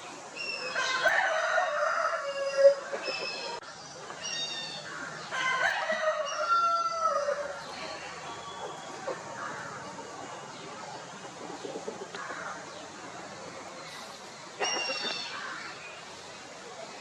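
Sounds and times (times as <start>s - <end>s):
rooster crowing: 0.7s - 2.9s, 5.3s - 7.5s.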